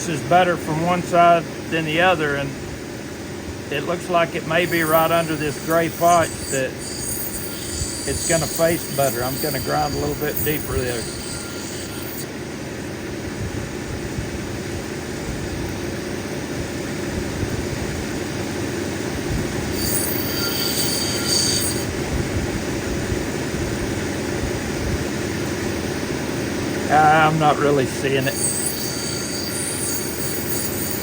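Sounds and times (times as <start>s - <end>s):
grinding wheel grinding stone: 3.8s - 12.4s, 19.6s - 22.0s, 26.9s - 31.0s
high squeal: 4.6s - 12.3s, 19.7s - 21.9s, 28.0s - 31.0s.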